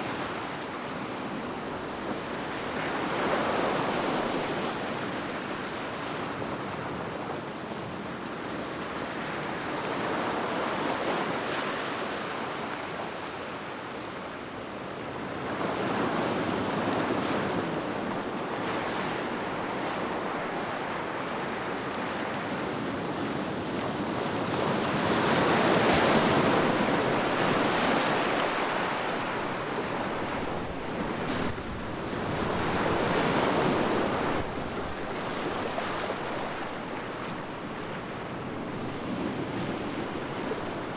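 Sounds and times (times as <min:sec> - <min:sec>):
sea waves breaking on shore: 0:15.2 - 0:40.9.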